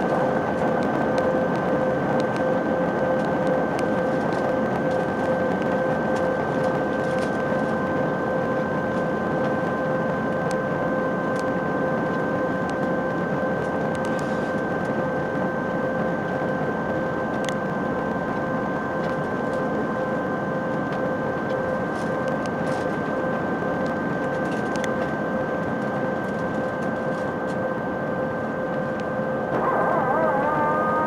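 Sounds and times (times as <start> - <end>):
aircraft cabin rushing hum: 0.0 - 10.5, 17.1 - 31.0
high whining tones: 29.5 - 31.0.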